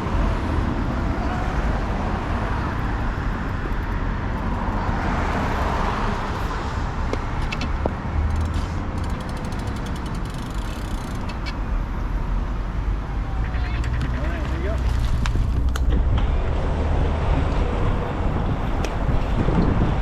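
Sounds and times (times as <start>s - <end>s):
wind rumbling on microphone: 0.0s - 11.2s, 14.0s - 20.0s
road traffic noise: 0.0s - 20.0s
light ticking: 2.3s - 6.6s, 8.3s - 11.6s.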